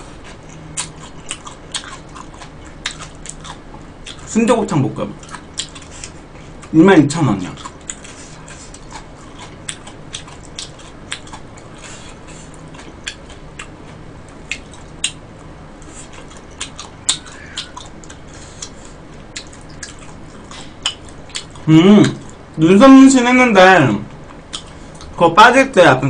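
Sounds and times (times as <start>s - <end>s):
person chewing food: 0.0s - 4.3s, 5.1s - 6.8s, 7.4s - 22.6s, 24.2s - 25.2s
faint low hum: 0.0s - 26.0s
wet mouth clicks: 5.2s - 6.2s, 16.3s - 22.4s.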